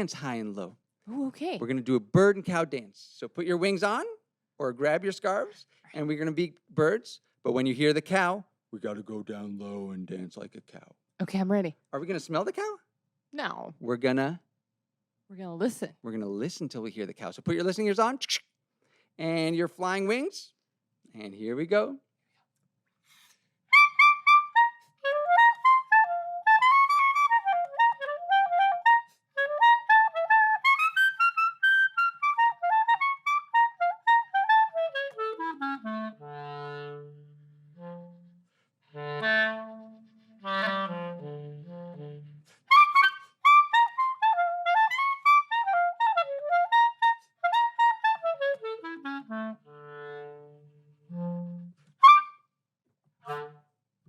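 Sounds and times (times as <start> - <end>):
clarinet playing: 23.7 - 52.5, 53.2 - 53.8.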